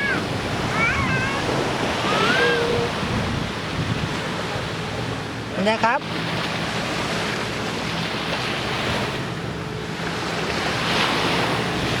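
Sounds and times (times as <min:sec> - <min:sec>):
wind buffeting microphone: 0:00.0 - 0:07.8
sea waves on sandy beach: 0:00.0 - 0:12.0.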